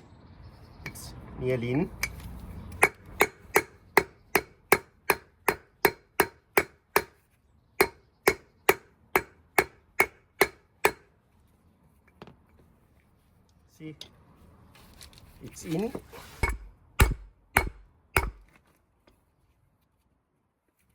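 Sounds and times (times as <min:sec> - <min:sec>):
hammer striking metal: 0:02.8 - 0:07.2, 0:07.8 - 0:11.1, 0:16.4 - 0:18.5.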